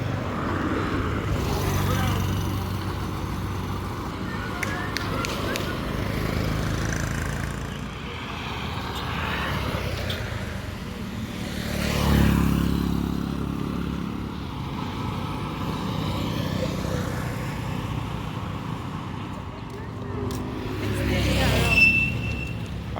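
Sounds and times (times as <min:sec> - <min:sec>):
street noise: 0:00.0 - 0:22.9
vehicle engine passing by: 0:11.2 - 0:17.8, 0:20.2 - 0:22.9.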